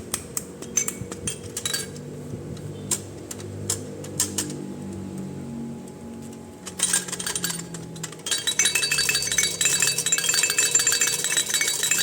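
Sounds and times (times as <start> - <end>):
small hard objects clinking: 6.7 - 12.0.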